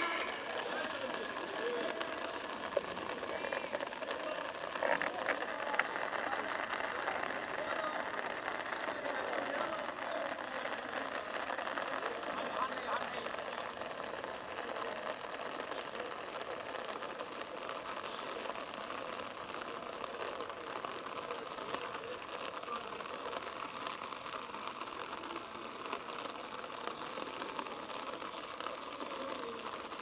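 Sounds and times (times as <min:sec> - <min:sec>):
distant players calling: 0:00.0 - 0:16.9
steady outdoor hiss: 0:00.0 - 0:30.0.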